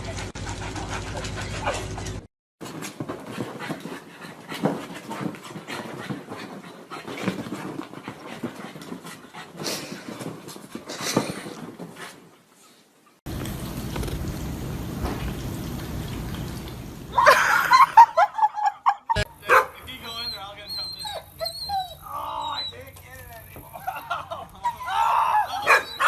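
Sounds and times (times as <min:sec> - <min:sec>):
dog panting: 0:00.0 - 0:02.2, 0:03.0 - 0:12.8, 0:19.5 - 0:22.8.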